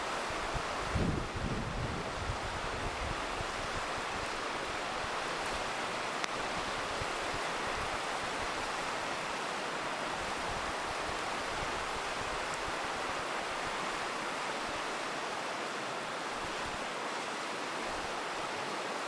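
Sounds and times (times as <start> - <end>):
river rushing: 0.0 - 19.0
campfire crackling: 3.2 - 15.0.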